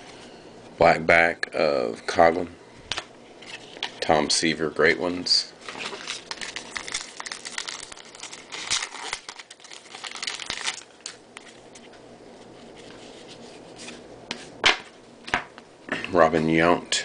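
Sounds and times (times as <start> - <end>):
wrapper crinkling and rustling: 5.6 - 13.4.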